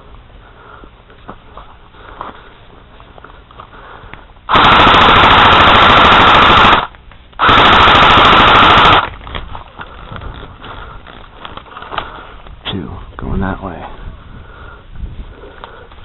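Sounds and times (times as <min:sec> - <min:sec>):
airsoft gun automatic bursts: 0:04.5 - 0:09.1.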